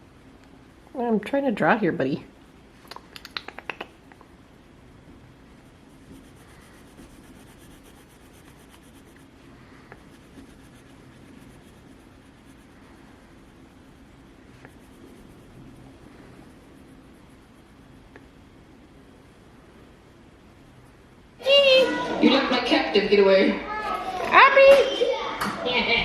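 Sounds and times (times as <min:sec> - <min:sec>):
low room hum: 0:00.0 - 0:26.0
drawing tool scratching on paper: 0:05.5 - 0:18.2.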